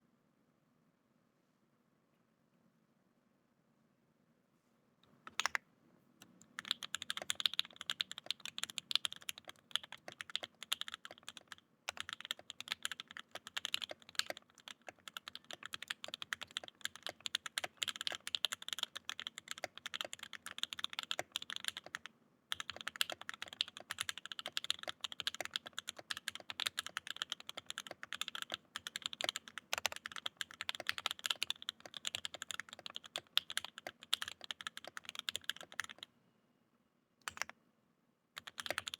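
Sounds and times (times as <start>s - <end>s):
mechanical keyboard typing: 5.3s - 5.6s, 6.5s - 36.1s, 37.2s - 37.5s, 38.4s - 38.9s.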